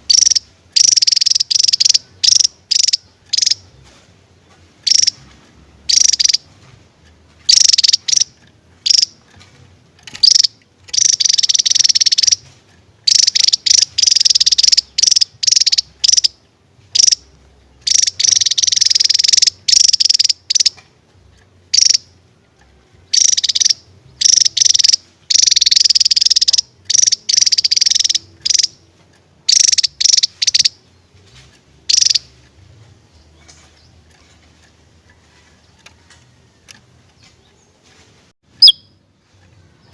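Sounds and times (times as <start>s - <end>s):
bird singing high-pitched trills: 0.0s - 3.8s, 4.8s - 5.2s, 5.9s - 6.5s, 7.5s - 9.2s, 10.1s - 12.4s, 13.0s - 20.8s, 21.7s - 22.2s, 23.1s - 28.8s, 29.4s - 31.2s, 31.8s - 32.4s, 38.5s - 39.9s.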